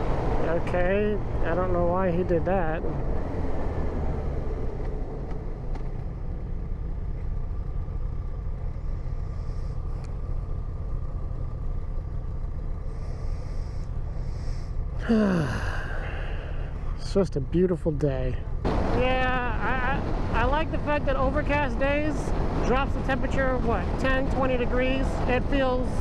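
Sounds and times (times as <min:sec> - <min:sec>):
motorcycle engine running: 0:00.0 - 0:03.4, 0:04.4 - 0:15.5.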